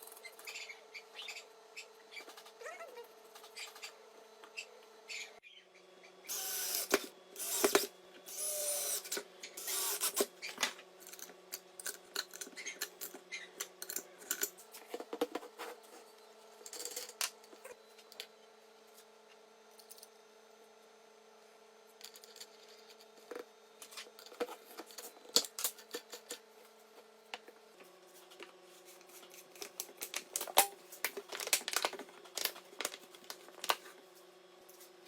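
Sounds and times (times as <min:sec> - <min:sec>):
small electric motor humming: 0:06.2 - 0:10.6.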